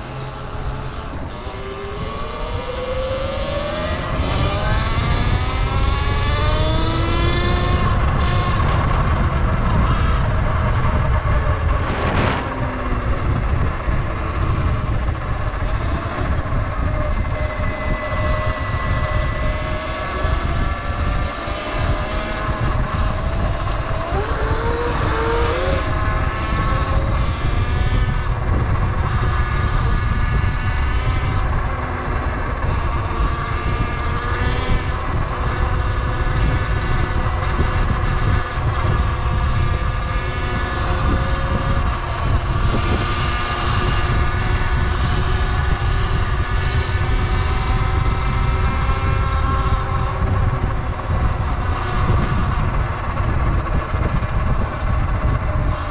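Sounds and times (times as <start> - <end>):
electric motor whining: 0.0 - 37.6
wind rumble on microphone: 0.0 - 55.9.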